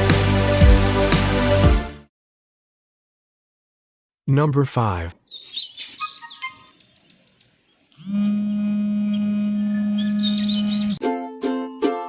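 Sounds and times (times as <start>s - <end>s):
small birds chirping: 5.2s - 8.1s, 9.1s - 11.0s.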